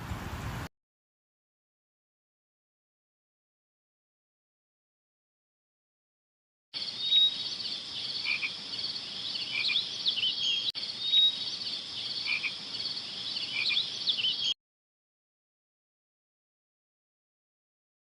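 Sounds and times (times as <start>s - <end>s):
frogs calling: 6.8s - 14.6s.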